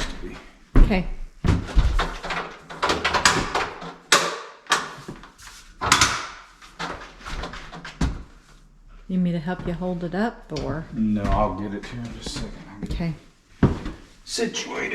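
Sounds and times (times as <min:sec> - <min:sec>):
door knocking against frame: 0:00.8 - 0:03.9.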